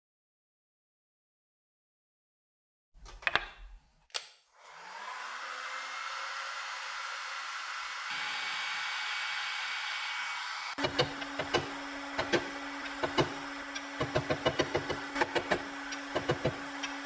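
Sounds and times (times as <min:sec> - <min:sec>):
electric blower motor: 0:04.6 - 0:17.0.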